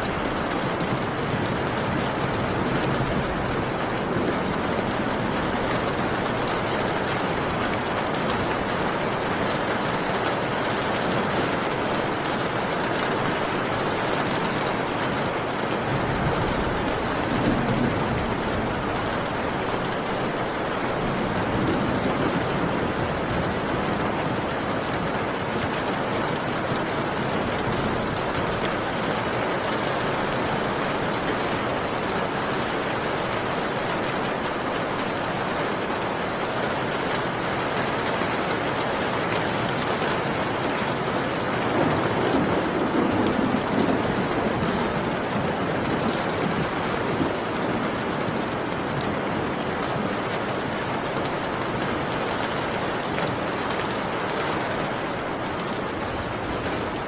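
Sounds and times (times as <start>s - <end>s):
steady rain: 0.0s - 57.0s
low rumble of thunder: 15.5s - 24.6s, 41.4s - 49.8s.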